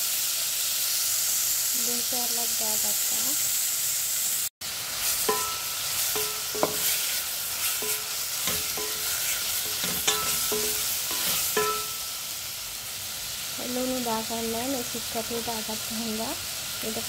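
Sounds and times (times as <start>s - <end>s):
chicken sizzling in oil: 0.0s - 17.0s
spatula knocking against pot: 5.3s - 7.0s, 7.8s - 12.0s.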